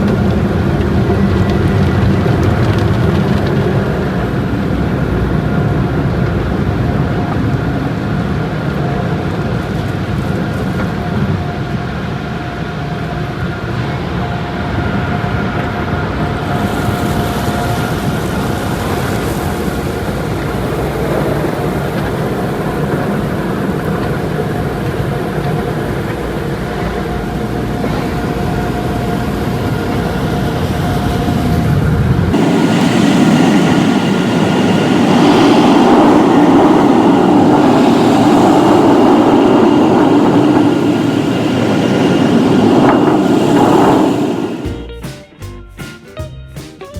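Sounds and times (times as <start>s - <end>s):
faint steady whine: 10.9s - 44.8s
rushing noise: 11.4s - 45.0s
car wash mechanical rumble: 16.5s - 45.0s.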